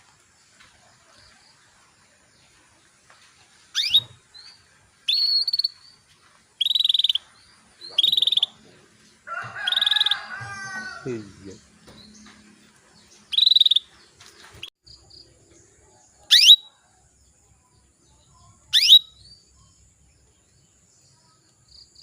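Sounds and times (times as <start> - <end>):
canary chirping and trilling: 3.7 - 4.2, 5.0 - 6.0, 6.6 - 8.6, 13.1 - 13.9, 16.3 - 16.6, 18.5 - 19.6.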